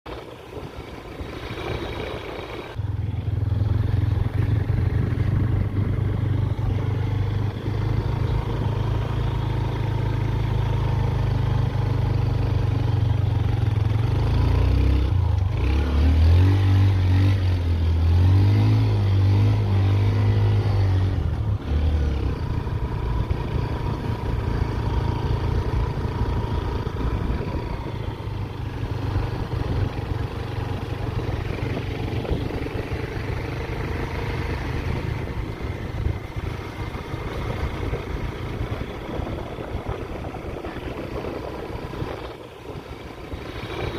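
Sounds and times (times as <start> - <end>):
motorcycle engine running: 0.1 - 43.9.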